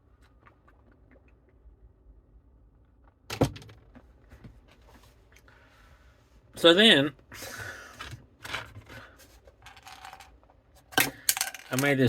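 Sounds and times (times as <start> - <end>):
objects being handled: 8.0 - 12.0.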